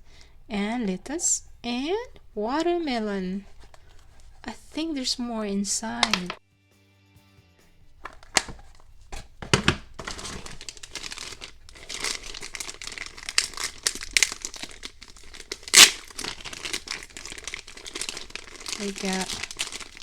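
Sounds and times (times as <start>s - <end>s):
packaging crinkling and rustling: 6.0s - 6.4s, 7.9s - 20.0s.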